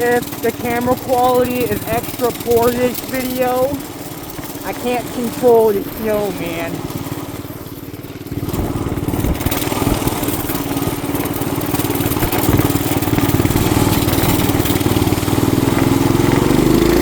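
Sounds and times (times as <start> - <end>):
small motorbike engine revving: 0.0 - 17.0
wind noise on microphone: 8.3 - 10.9, 12.1 - 16.9.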